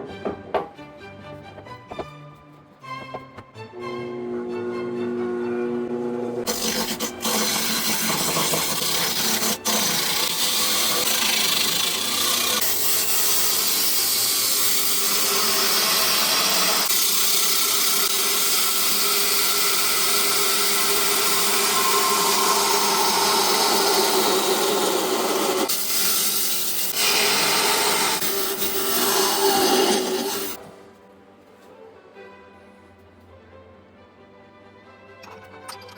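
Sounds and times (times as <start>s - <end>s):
power tool rasping wood: 6.4s - 30.6s.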